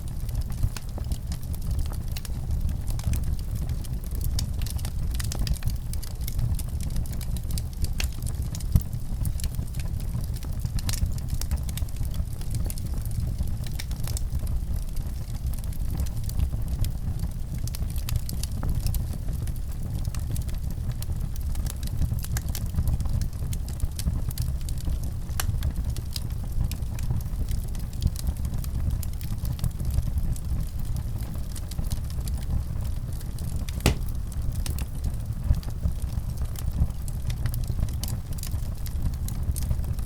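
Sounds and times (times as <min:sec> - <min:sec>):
fireplace fire crackling: 0:00.1 - 0:40.0
fire popping: 0:33.2 - 0:35.4.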